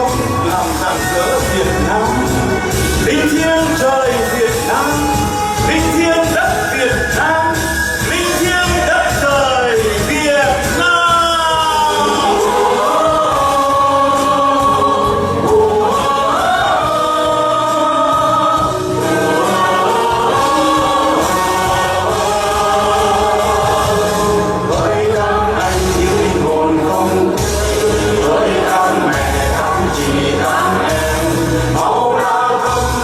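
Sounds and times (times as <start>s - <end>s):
backing music: 0.0s - 33.0s
choir singing: 8.0s - 33.0s.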